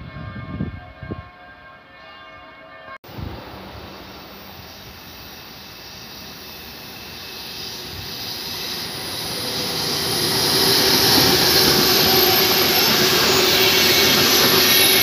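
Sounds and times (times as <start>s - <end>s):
train approaching with rushing rumble: 3.0s - 15.0s.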